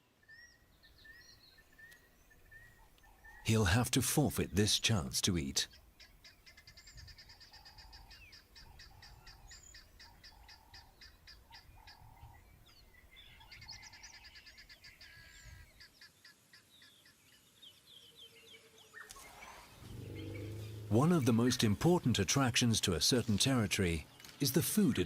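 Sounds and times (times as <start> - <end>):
rapid high ticking bird notes: 19.8 - 23.9.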